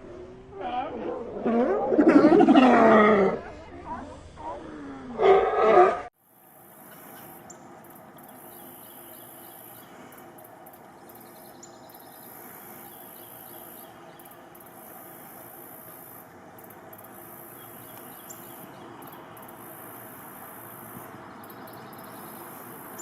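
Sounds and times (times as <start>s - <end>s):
insect buzzing: 6.3s - 23.0s.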